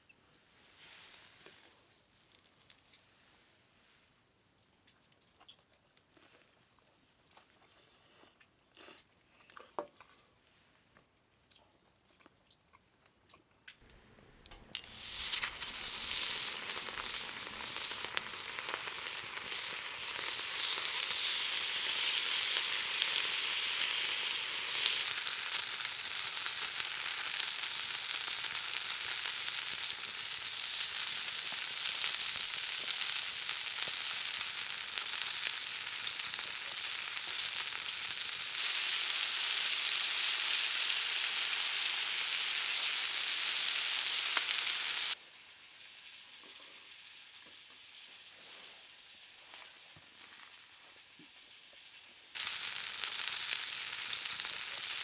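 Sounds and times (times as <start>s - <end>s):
food sizzling in a pan: 14.8s - 55.0s.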